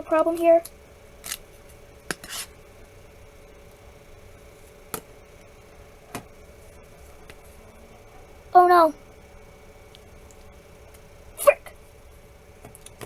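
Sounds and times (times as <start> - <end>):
brief scrape: 2.2 - 2.5.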